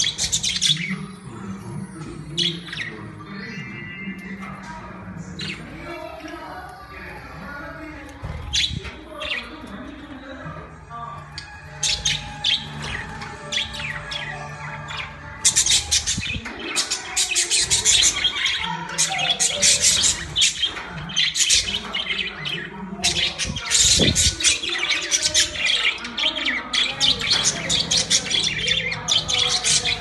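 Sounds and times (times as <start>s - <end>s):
budgerigars chattering: 0.0s - 1.0s, 2.0s - 3.9s, 11.3s - 30.0s.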